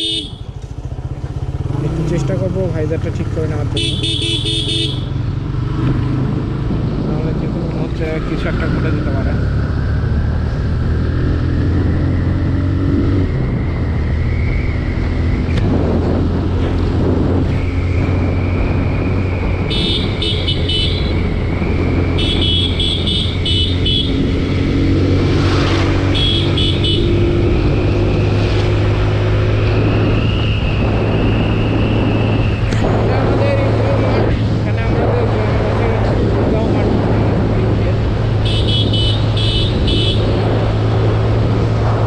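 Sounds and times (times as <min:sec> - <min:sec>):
vehicle horn rapid beeps: 0:00.0 - 0:00.5, 0:03.7 - 0:05.1, 0:19.7 - 0:21.2, 0:22.2 - 0:24.2, 0:26.1 - 0:27.2, 0:38.4 - 0:40.2
motorcycle engine running: 0:00.0 - 0:07.4, 0:14.8 - 0:30.1.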